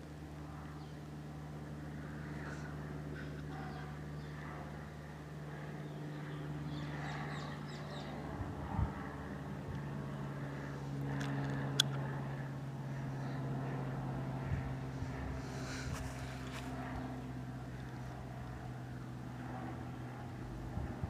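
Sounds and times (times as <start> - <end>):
light plane flying past: 0.0 - 21.0
birds chirping: 3.4 - 4.9, 5.7 - 8.4.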